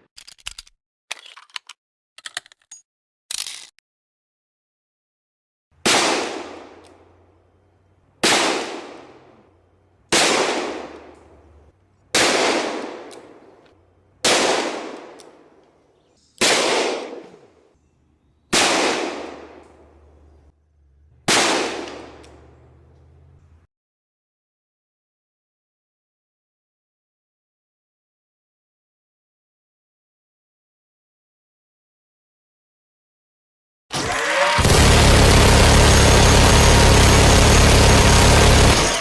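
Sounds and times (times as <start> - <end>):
gunshots with echo: 5.8 - 6.8, 8.2 - 9.3, 10.1 - 11.4, 12.1 - 13.5, 14.2 - 15.5, 16.4 - 17.6, 18.5 - 19.7, 21.3 - 22.3.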